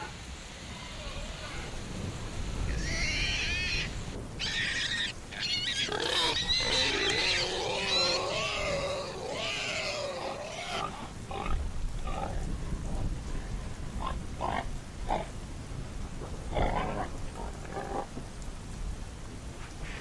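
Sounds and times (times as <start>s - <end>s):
wavering animal calls: 2.7s - 11.5s.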